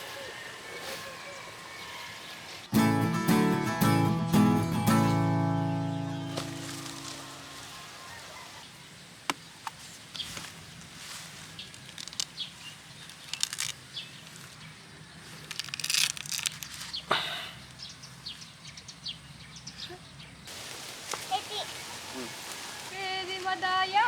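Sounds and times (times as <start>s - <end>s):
small birds chirping: 5.5s - 24.0s
rustle: 6.1s - 24.0s.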